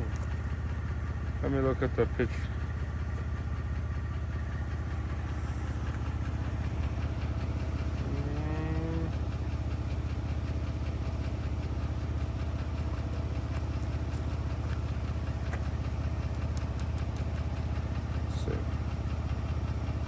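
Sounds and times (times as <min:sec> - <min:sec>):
car engine idling: 0:00.0 - 0:20.0
short low-pitched call: 0:08.0 - 0:09.2.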